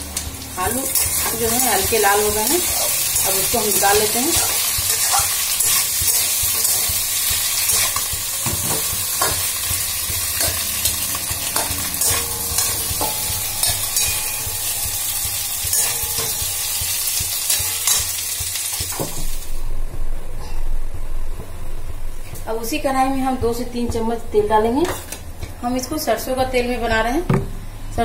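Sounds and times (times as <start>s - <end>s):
potatoes sizzling in hot oil: 0.0s - 19.6s
spatula scraping and knocking pan: 0.8s - 19.4s.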